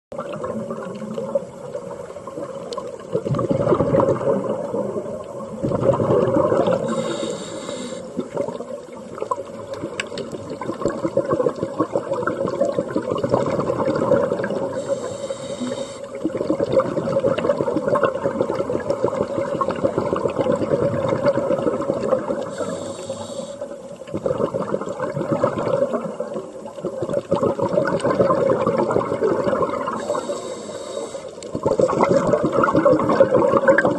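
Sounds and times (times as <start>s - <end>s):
hissing regulator inhale: 6.8s - 8.3s, 14.7s - 16.2s, 22.4s - 23.8s, 29.9s - 32.0s.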